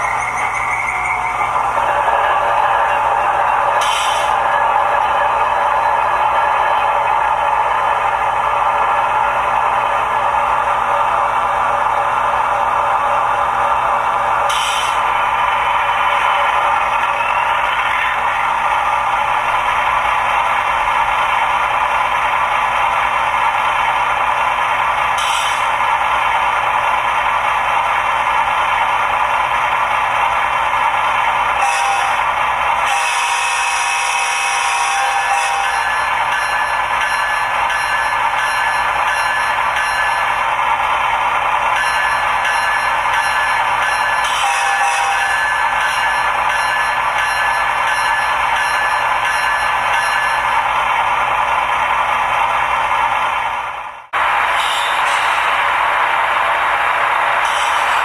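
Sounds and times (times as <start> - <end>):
high ringing bell: 0.0 - 3.8, 35.5 - 40.4, 41.7 - 50.6
model locomotive humming: 0.0 - 58.0.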